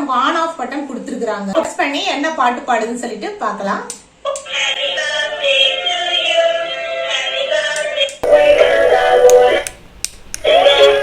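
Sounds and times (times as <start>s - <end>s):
toy playing electronic music: 8.2s - 9.7s, 10.4s - 11.0s.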